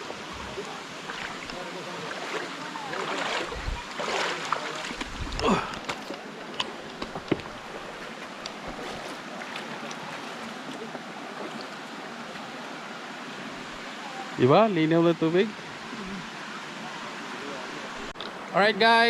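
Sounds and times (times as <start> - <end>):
water splashing: 0.0 - 12.6
stream running over rocks: 0.0 - 18.8.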